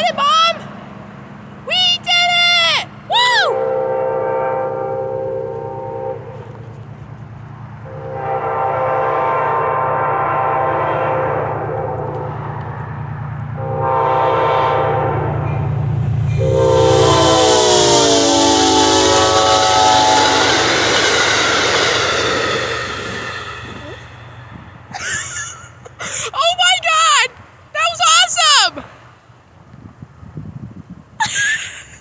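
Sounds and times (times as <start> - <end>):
train rushing past: 0.0 - 29.3
train horn blasts: 3.4 - 6.8, 7.8 - 12.8, 13.6 - 24.8
diesel engine rumble: 11.7 - 26.6.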